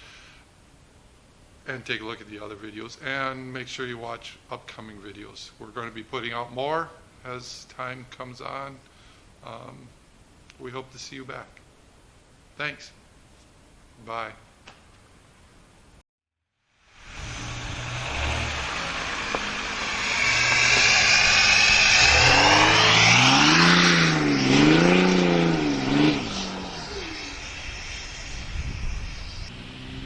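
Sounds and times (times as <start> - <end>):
diesel engine revving: 17.0 - 28.4, 29.4 - 30.0.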